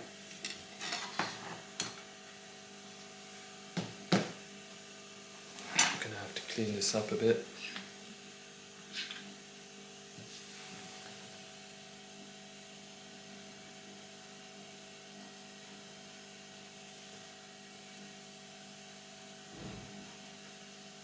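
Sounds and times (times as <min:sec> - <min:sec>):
mechanical hum with high whine: 0:00.0 - 0:21.0.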